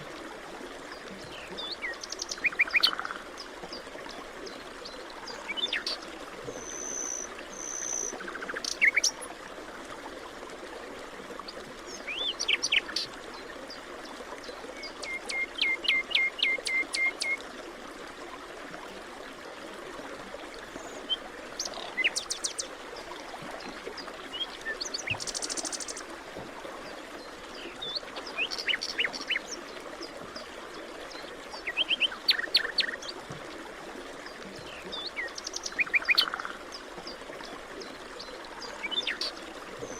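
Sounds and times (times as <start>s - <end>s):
songbirds singing: 1.0s - 3.8s, 4.4s - 9.3s, 11.9s - 13.1s, 14.4s - 17.4s, 20.8s - 22.7s, 24.0s - 26.1s, 27.2s - 33.2s, 34.3s - 37.2s, 37.8s - 39.9s.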